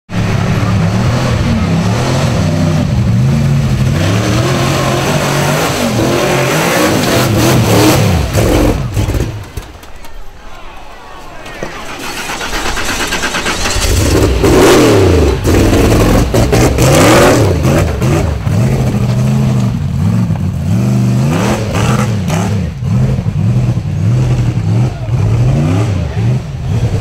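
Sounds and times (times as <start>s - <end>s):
engine revving hard: 0.2s - 9.4s, 11.9s - 27.0s.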